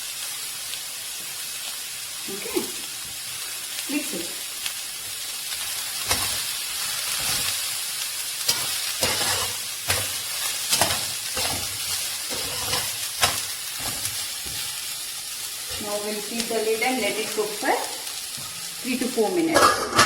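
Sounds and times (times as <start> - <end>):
vegetables sizzling in oil: 0.0 - 20.0
spoon scraping against pan: 8.4 - 14.9, 19.4 - 20.0.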